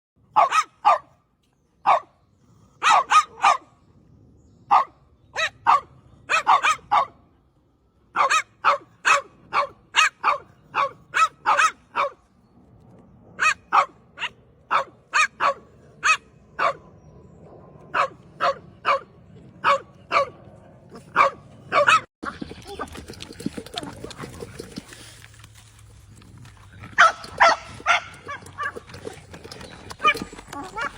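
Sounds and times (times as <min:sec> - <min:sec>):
dog barking: 0:00.3 - 0:01.2, 0:02.8 - 0:03.7, 0:04.7 - 0:07.2, 0:08.2 - 0:12.2, 0:13.4 - 0:16.8, 0:17.9 - 0:20.4, 0:21.0 - 0:22.1.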